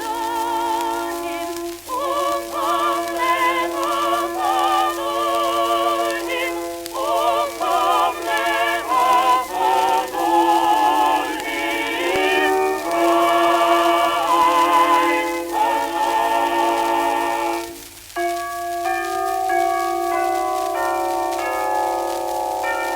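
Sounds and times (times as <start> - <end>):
operatic singing on old record: 0.0 - 22.9
sustained accompaniment: 0.0 - 22.9.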